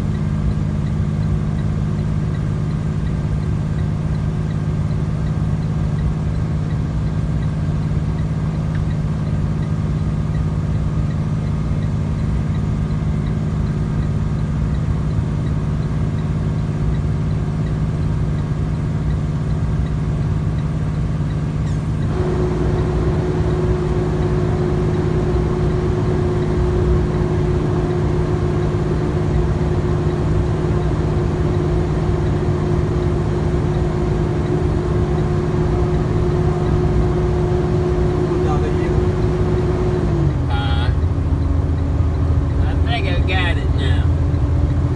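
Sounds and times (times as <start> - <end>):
truck engine drone in cab: 0.0 - 44.9
steady higher hum: 21.7 - 41.2.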